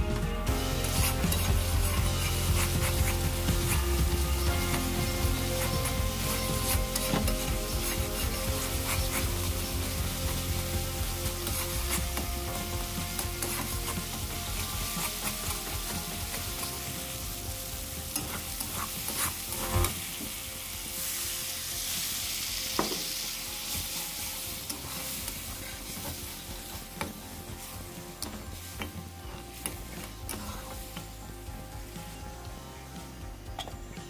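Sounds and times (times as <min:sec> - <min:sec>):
masala sizzling in a pan: 0:00.4 - 0:33.9
metal spatula scraping a pan: 0:00.6 - 0:17.1, 0:18.0 - 0:20.4, 0:22.8 - 0:31.2.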